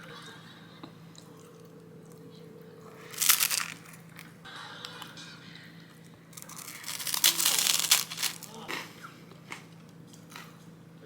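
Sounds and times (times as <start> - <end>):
loud crunching burst: 6.4 - 8.5.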